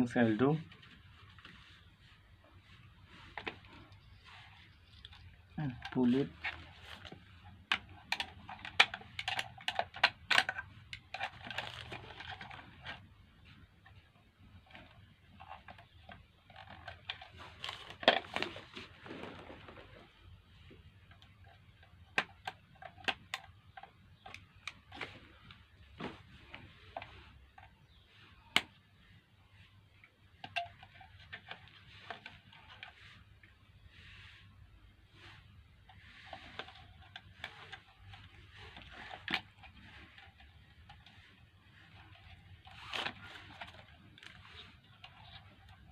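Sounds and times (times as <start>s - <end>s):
plastic parts clicking and tapping: 3.2s - 18.9s, 20.6s - 28.9s, 30.0s - 33.5s, 35.8s - 45.9s
scraping rustle: 10.4s - 20.3s, 24.8s - 45.9s.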